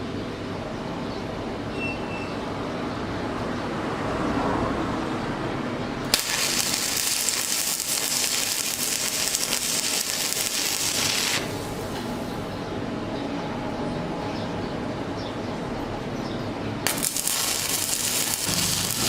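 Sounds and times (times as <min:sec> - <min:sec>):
welding arc crackling and sizzling: 0:06.1 - 0:12.5, 0:16.8 - 0:19.0.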